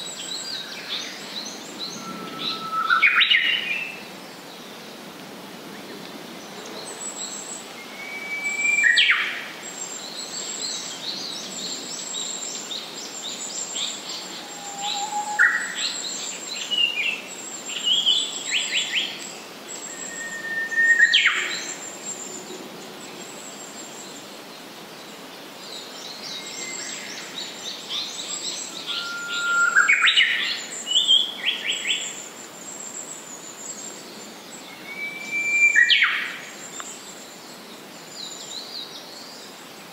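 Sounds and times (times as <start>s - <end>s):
bird whistling song phrases: 0.4s - 4.0s, 7.1s - 10.8s, 13.8s - 21.9s, 26.3s - 32.1s, 34.7s - 36.9s.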